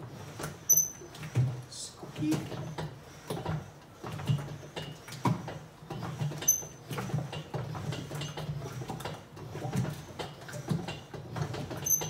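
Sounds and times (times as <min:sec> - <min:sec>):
mixer drum churning rumble: 0:00.0 - 0:12.0
short high squeak: 0:00.7 - 0:01.0.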